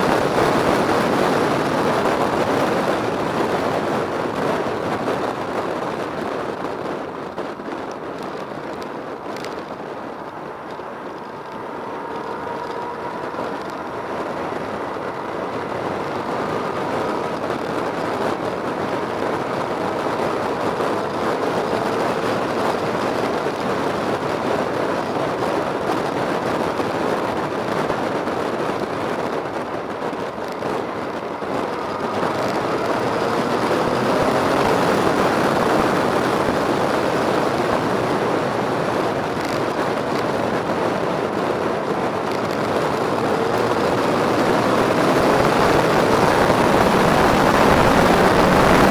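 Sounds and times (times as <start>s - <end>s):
motor vehicle running: 0.0s - 48.9s.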